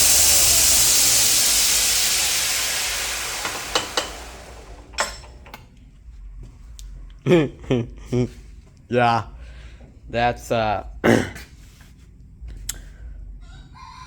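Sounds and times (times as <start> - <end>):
belt grinder hissing: 0.0 - 5.6.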